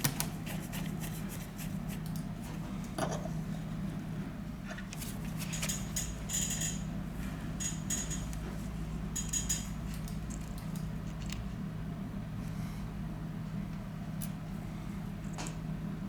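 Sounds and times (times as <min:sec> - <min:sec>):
steady low hum: 0:00.0 - 0:16.0
metal tools clicking and scraping: 0:09.1 - 0:11.4.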